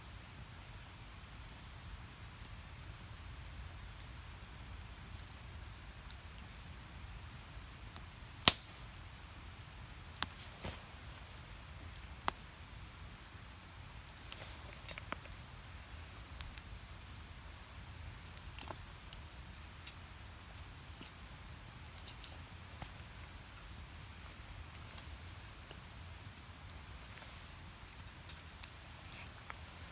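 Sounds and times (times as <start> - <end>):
wood fire crackling and popping: 0.0 - 29.9.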